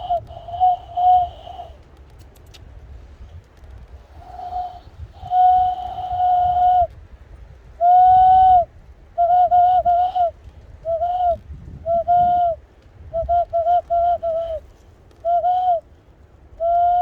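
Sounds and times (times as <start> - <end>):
cupped-hand whistle: 0.0 - 1.8, 4.2 - 6.9, 7.8 - 14.6, 15.2 - 15.8, 16.6 - 17.0.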